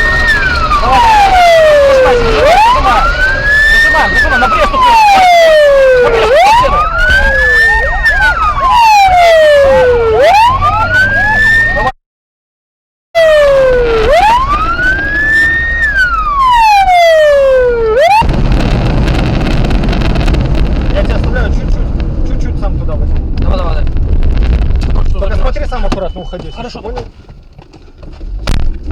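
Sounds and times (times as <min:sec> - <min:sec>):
moving vehicle rumble: 0:00.0 - 0:12.0, 0:13.2 - 0:28.9
police siren wailing: 0:00.0 - 0:12.0, 0:13.2 - 0:18.4.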